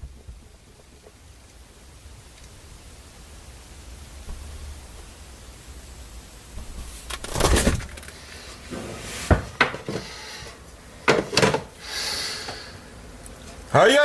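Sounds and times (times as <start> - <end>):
rustling: 3.7 - 13.7
objects knocking and clattering: 8.7 - 10.1, 11.0 - 11.7.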